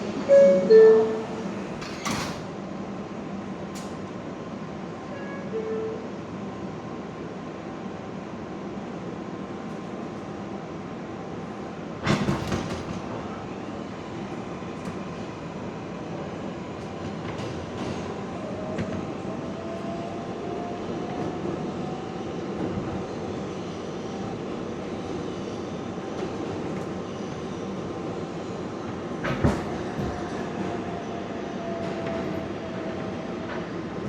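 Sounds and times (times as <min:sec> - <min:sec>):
wheels rumbling on rail: 0:08.8 - 0:34.0.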